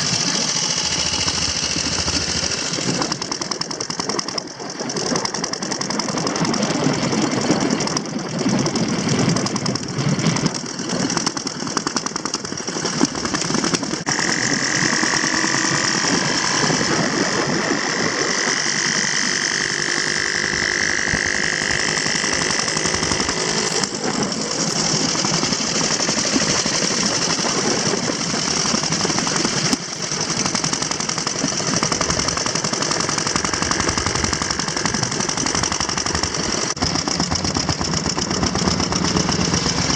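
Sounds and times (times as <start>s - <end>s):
motorcycle engines running: 0.0s - 39.9s.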